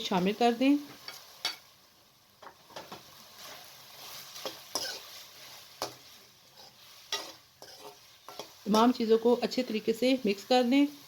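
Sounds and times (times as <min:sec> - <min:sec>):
vegetables sizzling in a pan: 0:00.0 - 0:11.0
spoon scraping against pan: 0:00.9 - 0:01.7, 0:02.7 - 0:09.9.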